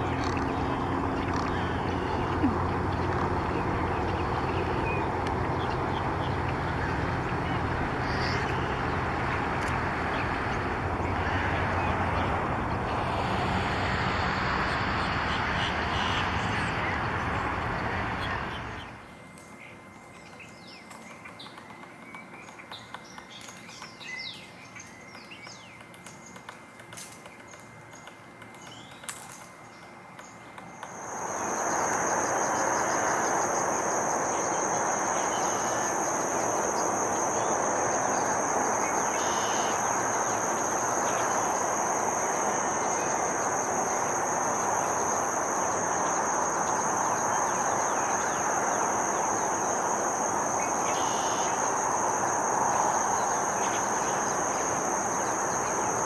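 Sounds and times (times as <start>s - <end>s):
small birds chirping: 0.0s - 13.0s, 15.0s - 56.0s
steady rushing noise: 0.0s - 19.0s, 30.6s - 56.0s
high-pitched insect drone: 0.0s - 21.8s, 30.6s - 56.0s.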